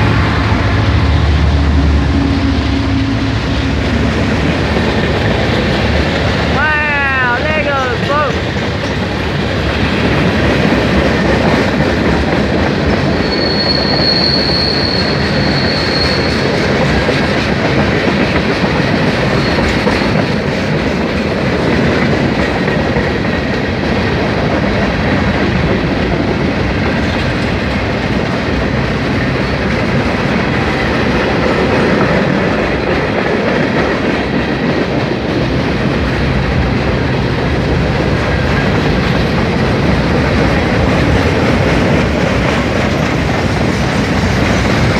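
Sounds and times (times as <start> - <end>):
freight train wheels rumbling: 0.0 - 44.9
wheel squeal: 13.0 - 16.6, 19.3 - 20.2.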